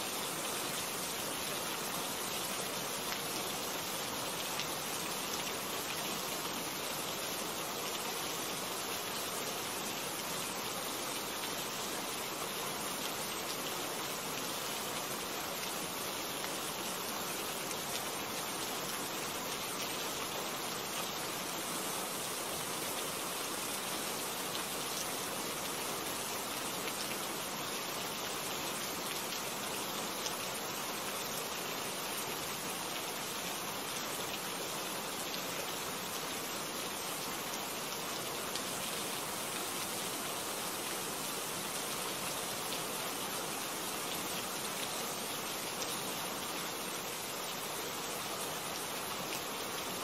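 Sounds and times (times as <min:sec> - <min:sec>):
steady rain hiss: 0:00.0 - 0:50.0.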